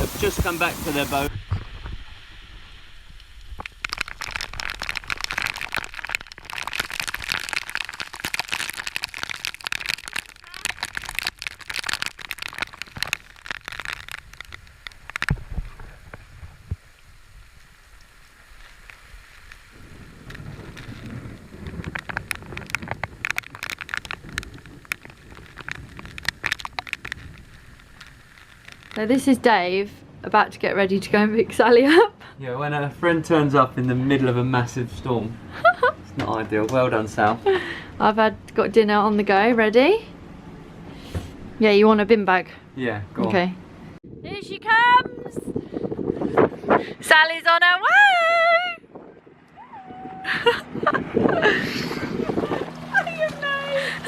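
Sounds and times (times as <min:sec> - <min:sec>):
heavy rain pattering: 0:00.0 - 0:01.3, 0:02.5 - 0:29.8, 0:50.3 - 0:54.0.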